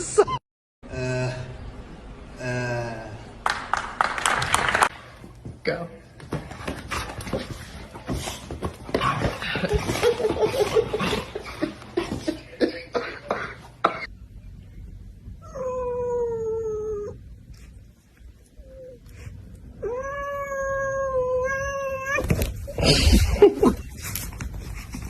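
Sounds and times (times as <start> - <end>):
cat yowling: 19.8 - 22.4.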